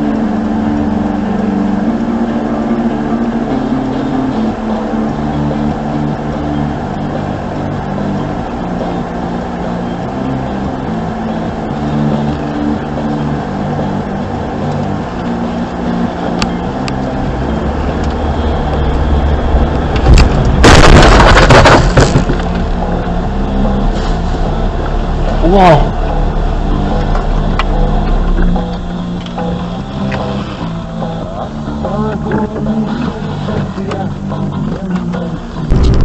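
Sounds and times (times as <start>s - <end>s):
car engine and road noise: 0.0s - 36.0s
car crash impact: 18.8s - 23.0s.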